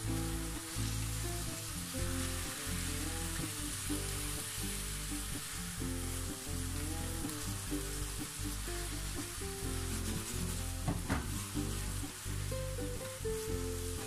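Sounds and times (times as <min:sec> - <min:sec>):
background music: 0:00.0 - 0:14.0
chicken sizzling in a pan: 0:00.0 - 0:14.0
wooden spatula stirring: 0:09.6 - 0:11.8.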